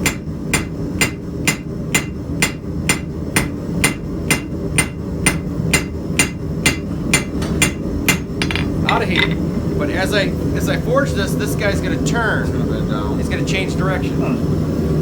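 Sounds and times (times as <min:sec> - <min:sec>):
hammer striking steel on anvil: 0:00.0 - 0:09.4.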